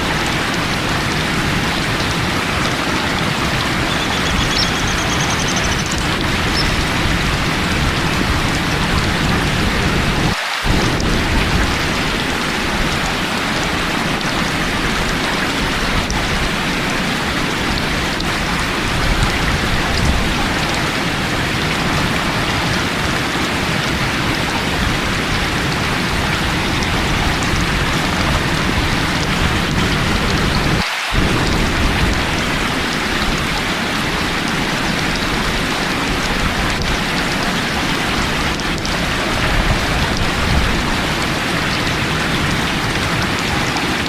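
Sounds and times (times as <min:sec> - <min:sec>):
heavy rain: 0:00.0 - 0:44.0
low rumbling thunder: 0:05.7 - 0:13.1, 0:26.0 - 0:33.6.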